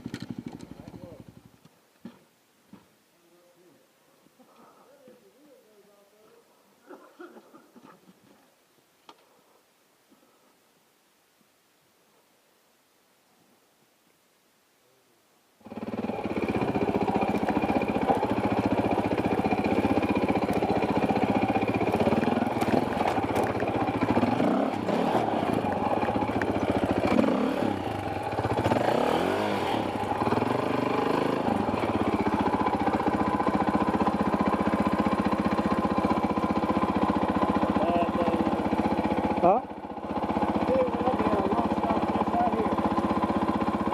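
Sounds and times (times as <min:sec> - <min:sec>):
dirt bike engine revving: 0:15.6 - 0:43.9.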